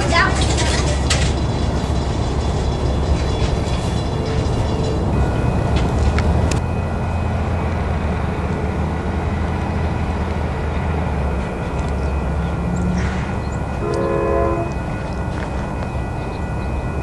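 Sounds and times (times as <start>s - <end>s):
train rumbling: 0.0s - 17.0s
train horn chord: 13.2s - 14.9s.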